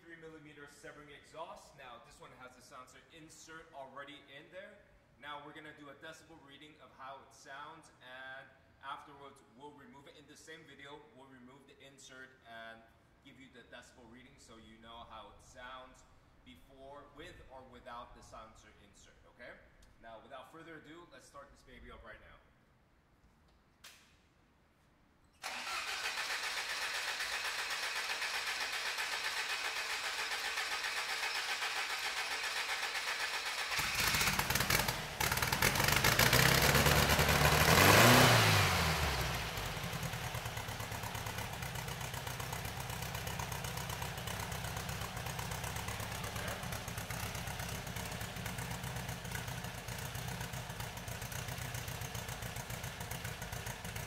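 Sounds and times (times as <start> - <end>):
car engine revving and idling: 25.8 - 54.0.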